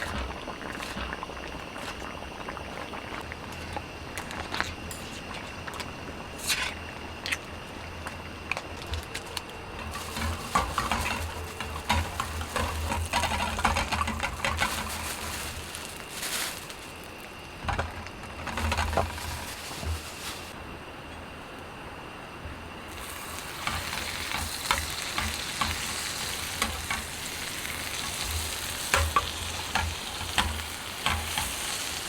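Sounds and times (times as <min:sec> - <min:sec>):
utensil scraping a pan: 0:09.8 - 0:15.5
food sizzling in a pan: 0:09.9 - 0:16.8, 0:22.9 - 0:32.0.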